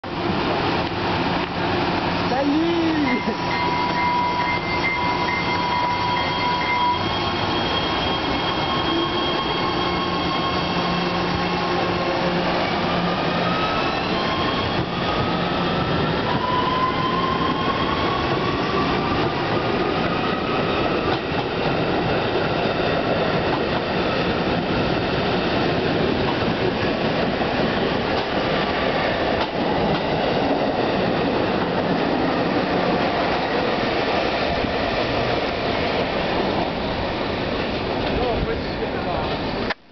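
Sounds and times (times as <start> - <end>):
train wheels rushing on rails: 0.1 - 39.8
steady high tone: 2.4 - 19.0.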